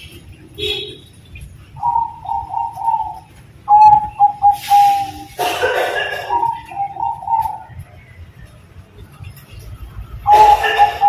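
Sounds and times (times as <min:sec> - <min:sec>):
dove cooing: 0:01.8 - 0:07.9, 0:10.2 - 0:11.0.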